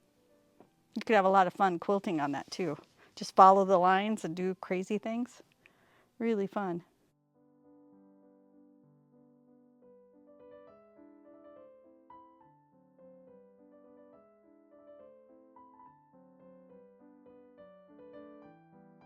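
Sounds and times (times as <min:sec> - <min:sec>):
soft piano music: 0:00.0 - 0:01.0, 0:07.1 - 0:19.0.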